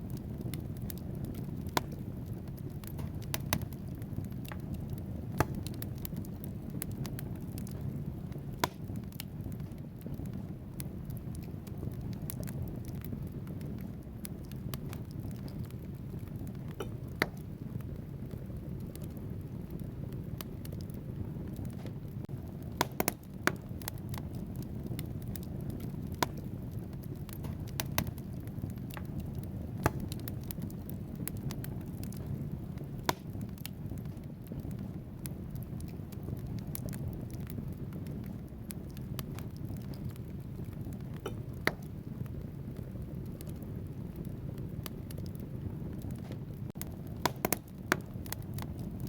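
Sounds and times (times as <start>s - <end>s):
flames rumbling: 0.0s - 49.0s
logs crackling and popping: 0.0s - 49.0s.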